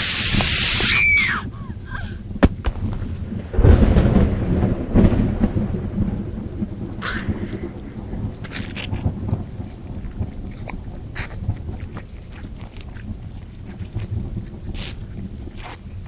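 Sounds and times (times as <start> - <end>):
short hiss: 0.0 - 1.0
hissing burst with falling shriek: 0.0 - 1.5
deep rolling rumble: 0.0 - 16.0
sharp crack: 2.4 - 6.4, 7.0 - 7.7.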